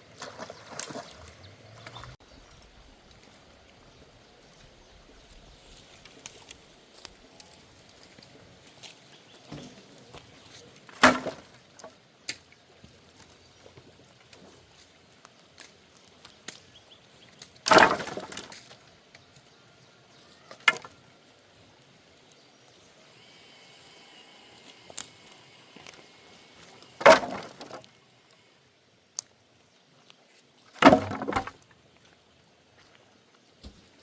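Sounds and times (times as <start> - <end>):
tree wood cracking and crashing: 0.1 - 3.4, 10.6 - 12.4, 14.3 - 18.8, 24.2 - 28.0, 30.7 - 31.8
splintering crackle: 13.2 - 18.8, 23.2 - 28.5, 30.0 - 32.2.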